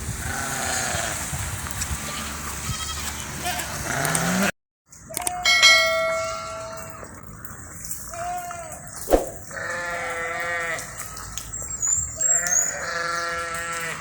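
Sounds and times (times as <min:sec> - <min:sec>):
livestock bleating: 0:02.1 - 0:04.5, 0:09.6 - 0:10.9, 0:12.7 - 0:14.0
sharp knock: 0:09.0 - 0:09.4.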